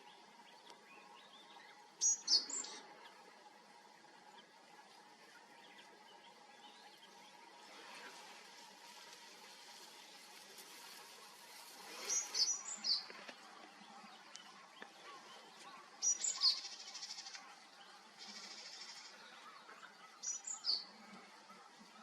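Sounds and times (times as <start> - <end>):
bird singing high phrases: 0.9 - 3.1, 11.9 - 13.1, 14.0 - 20.9.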